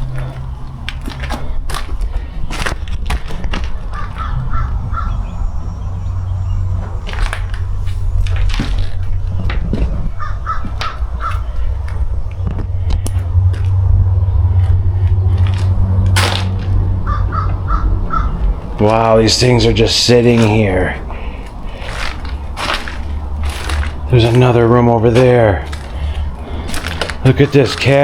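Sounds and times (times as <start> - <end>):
sharp clicks and crunches: 0.0 - 5.2, 6.6 - 28.0
steady low hum: 0.0 - 28.0
crows cawing: 3.6 - 24.6, 25.2 - 28.0.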